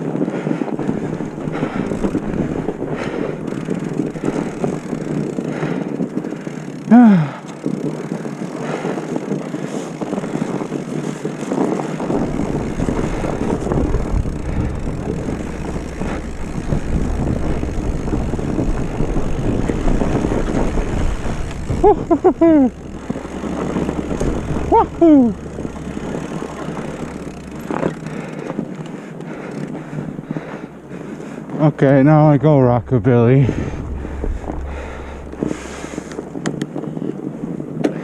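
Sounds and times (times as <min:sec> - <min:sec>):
sliding on snow: 0:00.0 - 0:37.8
wind buffeting microphone: 0:00.0 - 0:38.0
deep rumble: 0:00.8 - 0:05.8, 0:12.0 - 0:37.0.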